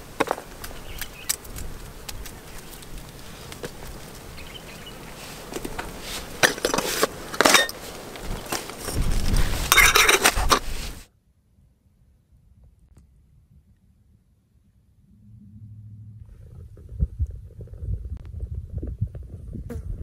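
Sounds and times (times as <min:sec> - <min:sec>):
cookware clinking and clattering: 0:06.4 - 0:07.8, 0:09.7 - 0:10.6.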